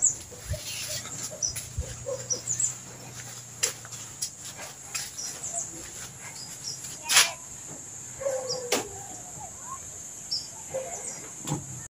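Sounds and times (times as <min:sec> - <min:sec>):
bird chirps: 0:00.0 - 0:03.2, 0:05.0 - 0:07.0, 0:08.2 - 0:11.3.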